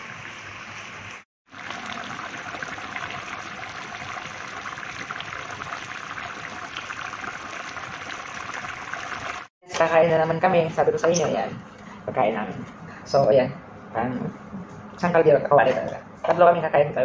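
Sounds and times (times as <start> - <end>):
broth bubbling in a wok: 0.0 - 9.5.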